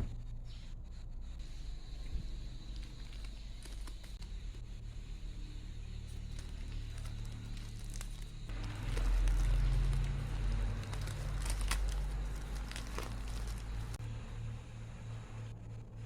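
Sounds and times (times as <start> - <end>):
low steady hum: 0.0 - 16.0
packaging crinkling and rustling: 2.8 - 4.2, 6.1 - 14.0.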